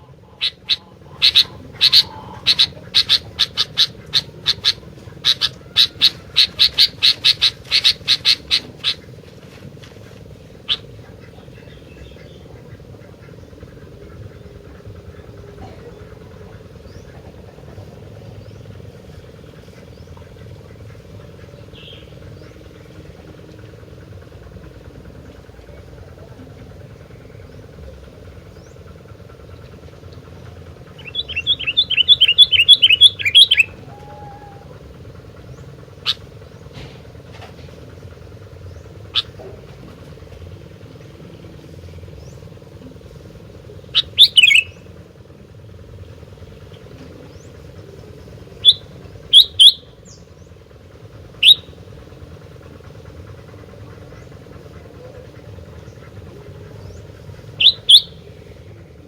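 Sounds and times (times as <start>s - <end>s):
steady background hum: 0.0s - 59.0s
bird calling sharp high notes: 31.0s - 34.9s, 43.9s - 44.9s, 48.6s - 50.2s, 51.4s - 51.8s, 56.9s - 58.3s.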